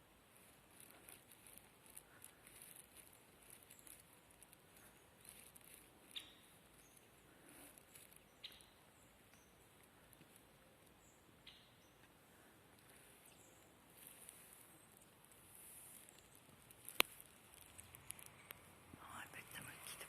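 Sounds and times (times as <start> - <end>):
distant birds chirping: 0.7 - 15.3
sharp clicks: 16.7 - 18.7.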